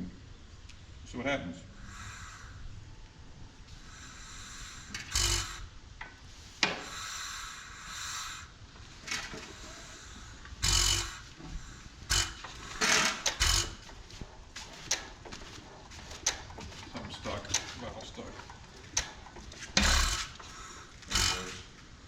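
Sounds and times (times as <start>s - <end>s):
metal parts scraping: 4.9s - 5.6s, 8.8s - 21.8s
hard metal clunks: 10.6s - 21.7s.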